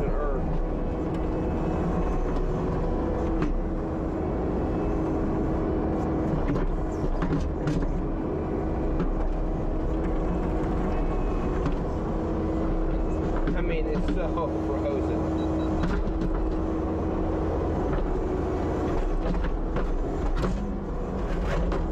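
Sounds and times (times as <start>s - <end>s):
diesel engine running: 0.0s - 21.9s
engine whine: 0.0s - 21.9s.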